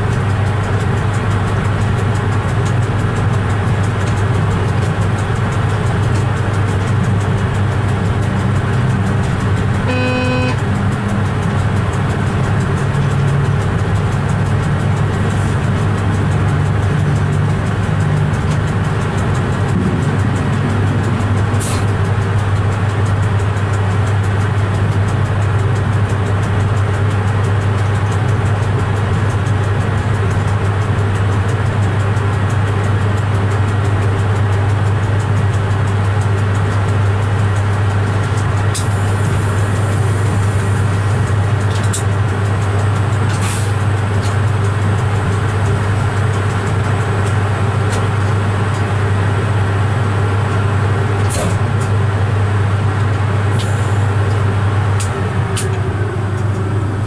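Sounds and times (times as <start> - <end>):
low hum of train cab: 0.0 - 57.0
short high clicks: 9.8 - 10.7.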